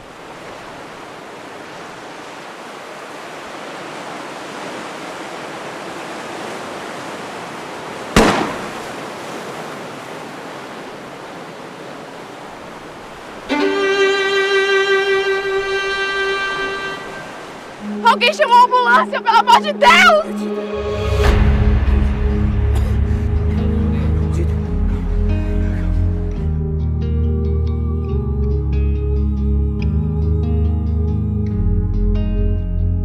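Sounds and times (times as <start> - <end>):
gunshot: 8.2 - 9.0
bowed violin music: 13.4 - 26.6.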